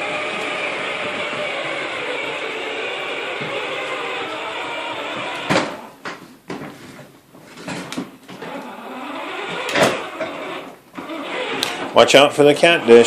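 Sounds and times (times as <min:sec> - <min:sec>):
toy tractor electric drive whirring: 0:00.0 - 0:05.5, 0:08.4 - 0:12.0.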